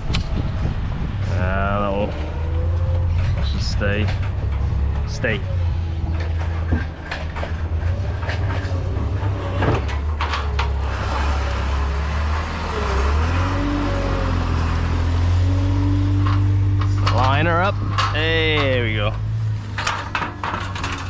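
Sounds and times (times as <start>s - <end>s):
vehicle engine running: 0.0s - 21.0s
clicks and knocks: 5.9s - 11.8s, 16.1s - 21.0s.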